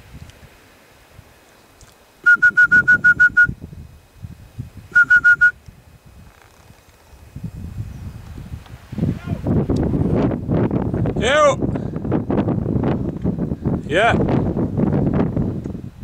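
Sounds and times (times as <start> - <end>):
wind rumble on microphone: 0.0 - 1.4, 2.2 - 16.0
bird whistling calls: 2.2 - 3.6, 4.9 - 5.6.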